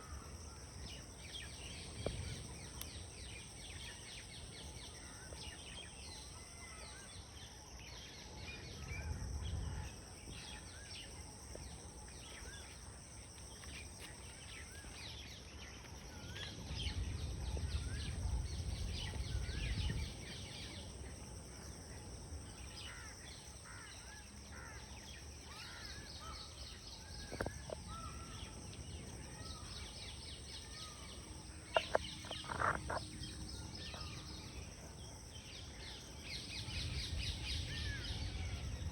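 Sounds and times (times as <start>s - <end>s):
small birds chirping: 25.0s - 38.8s.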